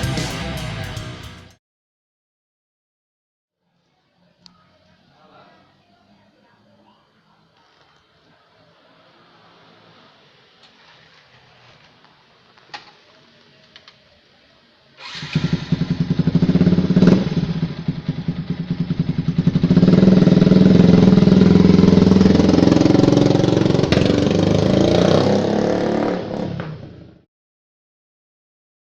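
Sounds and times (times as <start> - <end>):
motorcycle engine starting and running: 15.0 - 27.2.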